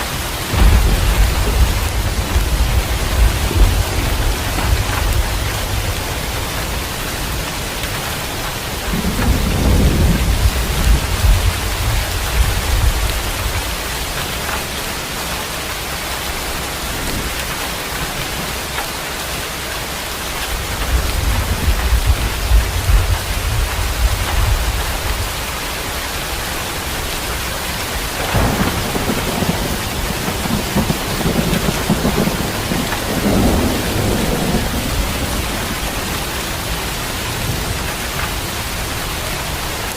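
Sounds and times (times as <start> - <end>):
heavy rain falling: 0.0 - 39.9
thunder rumbling: 0.3 - 18.8, 19.6 - 39.9
sharp thunderclap: 0.5 - 6.7, 8.9 - 13.8, 28.1 - 38.4.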